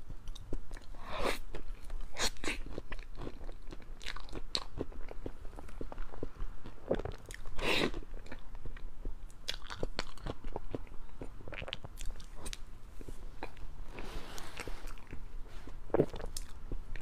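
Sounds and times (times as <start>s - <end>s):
wet chewing and mouth clicks: 0.2s - 13.7s.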